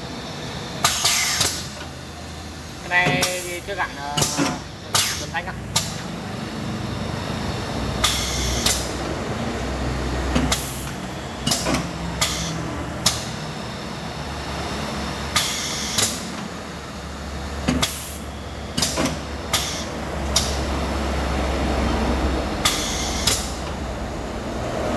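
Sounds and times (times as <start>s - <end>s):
drilling machine motor hum: 0.0s - 24.9s
machine clacking: 2.8s - 6.2s.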